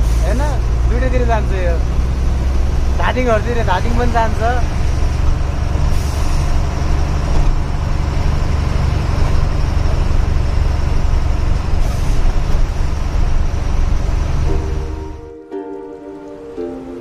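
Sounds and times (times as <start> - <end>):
truck diesel engine running: 0.0 - 15.4
road noise: 0.0 - 17.0
brief air hisses: 5.9 - 6.6.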